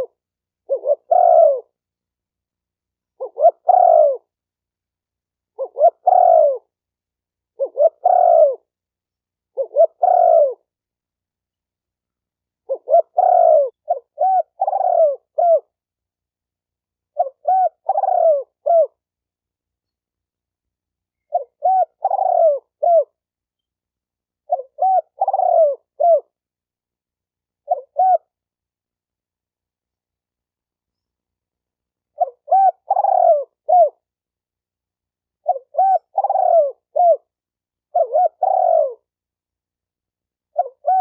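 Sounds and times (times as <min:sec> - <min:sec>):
dove cooing: 0:00.0 - 0:01.8, 0:03.2 - 0:04.3, 0:05.6 - 0:06.7, 0:07.6 - 0:08.7, 0:09.5 - 0:10.7, 0:12.7 - 0:15.7, 0:17.1 - 0:19.0, 0:21.3 - 0:23.2, 0:24.5 - 0:26.4, 0:27.6 - 0:28.4, 0:32.1 - 0:34.1, 0:35.4 - 0:37.3, 0:37.9 - 0:39.2, 0:40.5 - 0:41.0.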